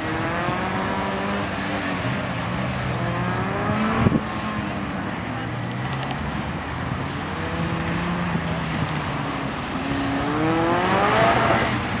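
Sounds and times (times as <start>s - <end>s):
sports car engine revving: 0.0s - 1.6s, 9.8s - 12.0s.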